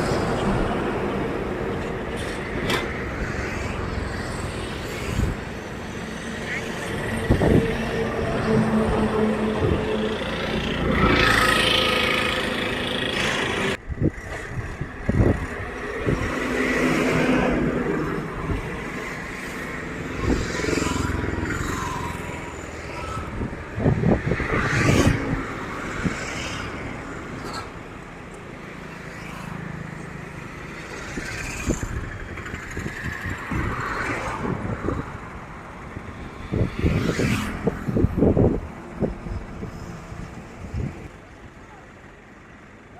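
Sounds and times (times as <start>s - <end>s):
tractor engines revving: 0.0s - 42.9s
voices: 41.2s - 42.9s.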